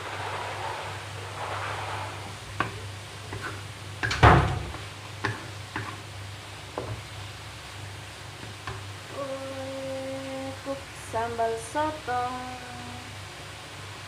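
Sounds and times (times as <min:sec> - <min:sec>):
steady low hum: 0:00.0 - 0:14.0
kitchen knocks and clatters: 0:02.6 - 0:06.0.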